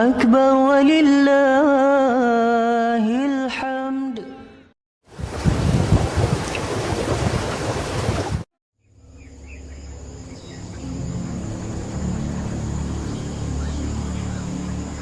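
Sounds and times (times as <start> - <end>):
insects droning: 8.9 - 15.0.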